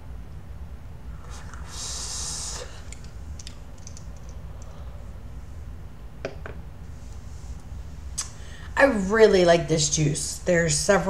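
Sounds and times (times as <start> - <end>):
vape hiss: 1.1 - 3.1.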